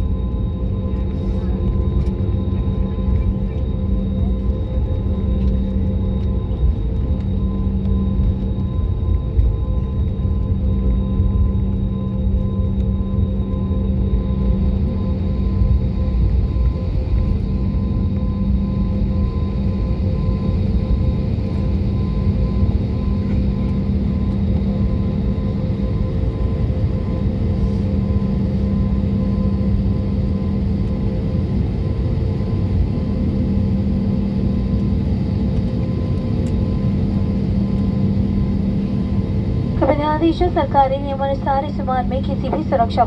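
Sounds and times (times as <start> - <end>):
airliner cabin rumble: 0.0 - 43.0
steady hums: 13.9 - 43.0.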